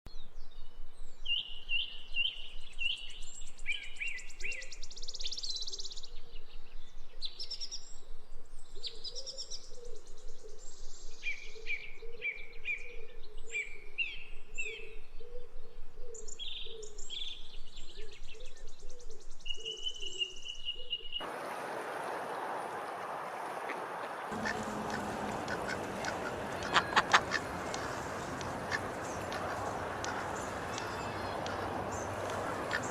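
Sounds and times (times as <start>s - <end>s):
songbirds singing: 8.6s - 32.9s.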